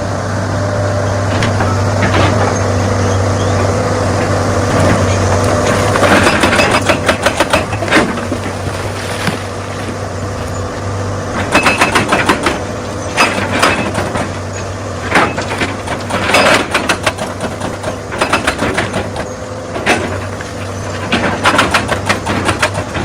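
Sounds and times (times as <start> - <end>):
excavator diesel engine running: 0.0 - 23.0
rocks knocking and clattering: 4.6 - 14.4, 15.1 - 23.0.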